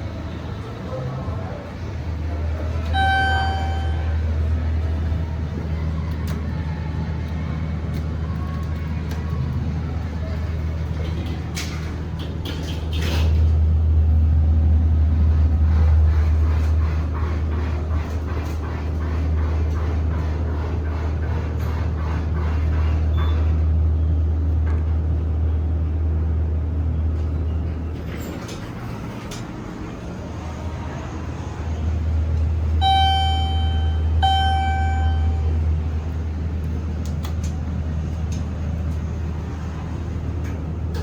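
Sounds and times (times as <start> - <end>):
elevator low drone: 0.0 - 18.8, 23.2 - 41.0
elevator humming: 1.7 - 7.2, 31.8 - 41.0.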